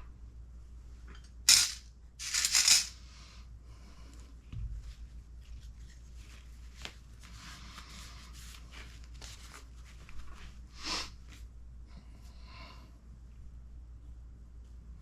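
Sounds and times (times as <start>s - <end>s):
low steady hum: 0.0s - 15.0s
small parts clicking: 1.5s - 3.0s.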